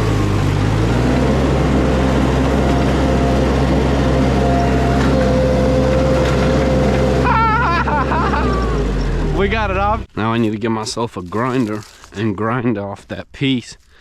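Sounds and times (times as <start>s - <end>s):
skid steer engine running: 0.0s - 10.1s.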